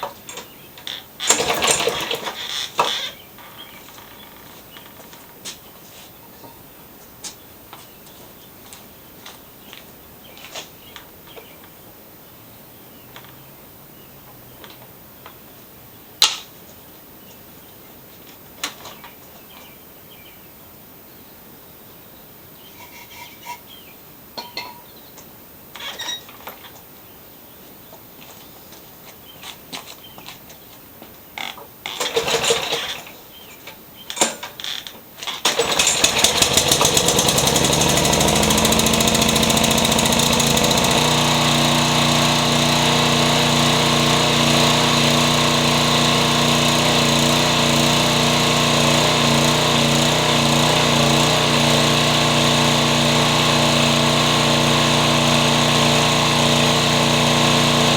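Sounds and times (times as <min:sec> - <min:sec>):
lawn mower engine running: 0:01.2 - 0:05.1, 0:31.9 - 0:33.1, 0:35.4 - 0:57.9.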